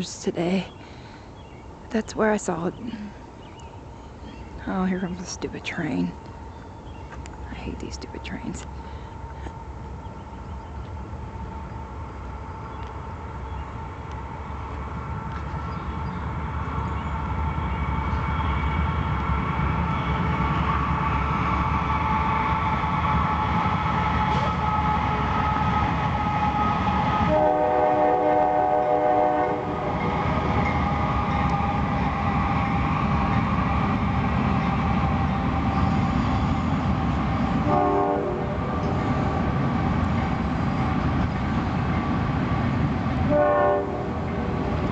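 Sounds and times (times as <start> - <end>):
train rumble: 0.0 - 44.9
train horn: 24.2 - 30.1, 37.6 - 38.9, 43.3 - 44.6.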